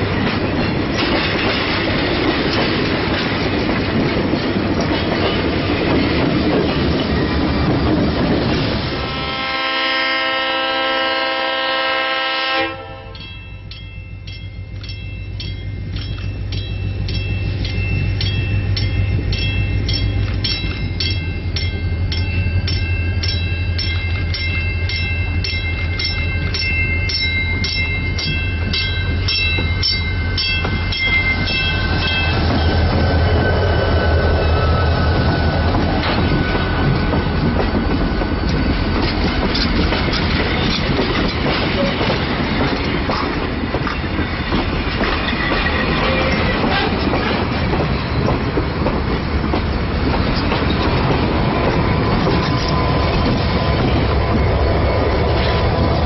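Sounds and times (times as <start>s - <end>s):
coach wheels on rails: 0.0s - 10.8s, 12.7s - 56.0s
diesel locomotive engine drone: 0.0s - 56.0s
locomotive bell ringing: 12.7s - 42.6s, 45.2s - 56.0s.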